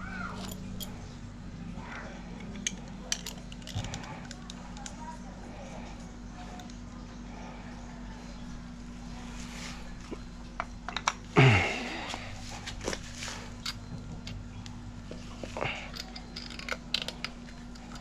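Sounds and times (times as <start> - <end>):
steady low hum: 0.0 - 18.0
metal tools and parts clinking: 0.3 - 1.0, 2.4 - 4.9, 15.3 - 18.0.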